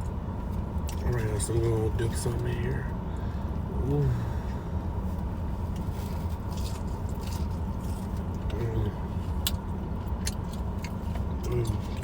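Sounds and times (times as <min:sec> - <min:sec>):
crunchy chewing: 0:05.7 - 0:12.0.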